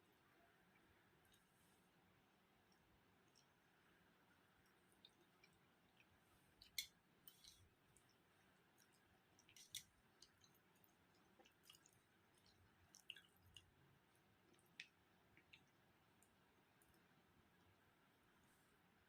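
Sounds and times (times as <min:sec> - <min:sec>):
soft wet chewing: 0:00.0 - 0:19.0.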